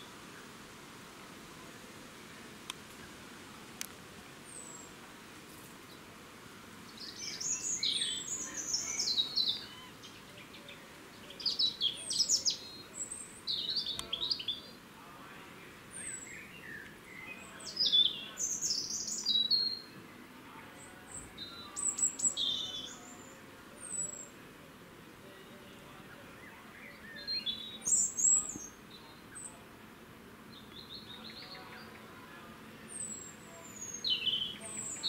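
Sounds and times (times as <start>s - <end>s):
birds chirping: 2.2s - 5.1s, 6.7s - 35.0s.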